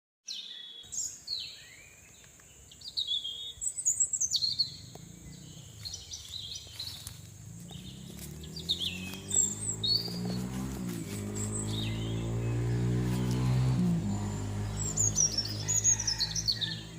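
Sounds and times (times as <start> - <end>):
birds chirping: 0.3 - 16.9
low droning hum rising in pitch: 4.4 - 16.9.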